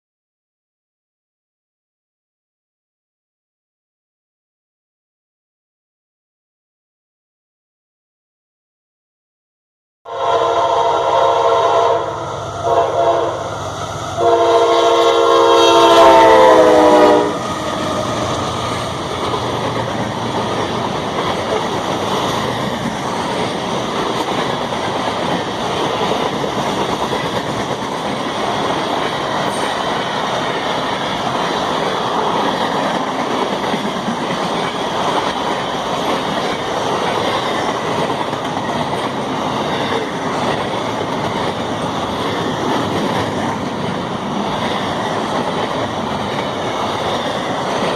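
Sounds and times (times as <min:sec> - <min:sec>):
train horn chord: 0:10.1 - 0:17.7
train wheels rolling on rails: 0:12.2 - 0:47.9.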